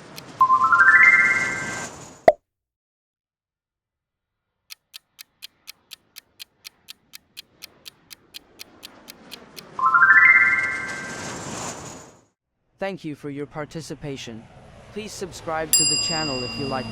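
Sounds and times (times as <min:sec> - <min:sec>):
clock ticking: 0:00.0 - 0:00.4, 0:04.7 - 0:09.7.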